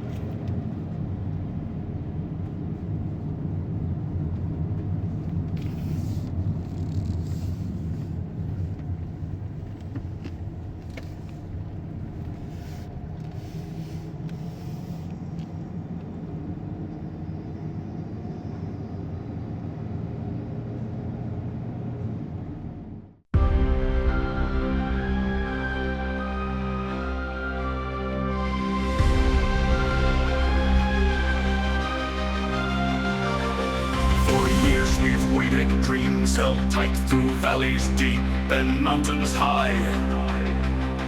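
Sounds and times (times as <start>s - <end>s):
low rumble of motor vehicles: 0.0s - 41.0s
brief hisses: 5.6s - 6.3s, 7.2s - 8.1s.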